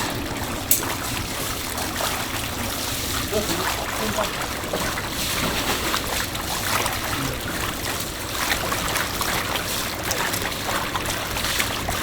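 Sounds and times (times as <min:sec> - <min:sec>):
water running and splashing: 0:00.0 - 0:12.0.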